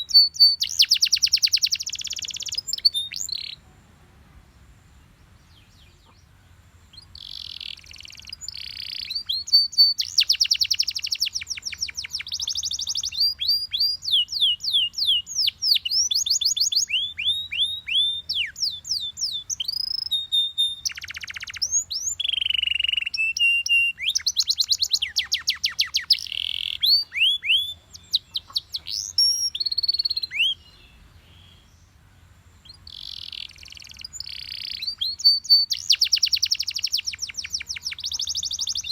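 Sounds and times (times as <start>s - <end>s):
canary singing trills: 0.0s - 3.7s, 5.0s - 38.9s.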